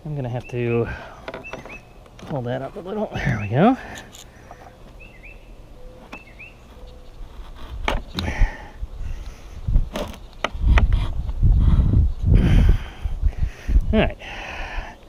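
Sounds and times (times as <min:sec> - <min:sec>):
low thumps and rumbling: 0:07.6 - 0:14.1.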